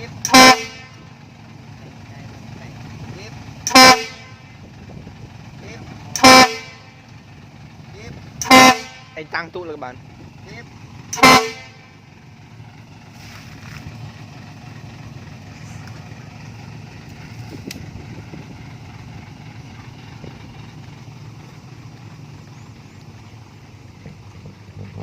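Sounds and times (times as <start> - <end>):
vehicle engine rumbling: 0.0 - 25.0.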